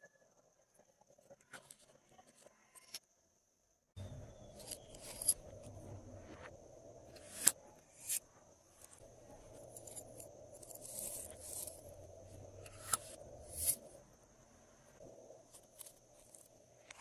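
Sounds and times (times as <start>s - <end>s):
faint high whine: 3.8s - 17.0s.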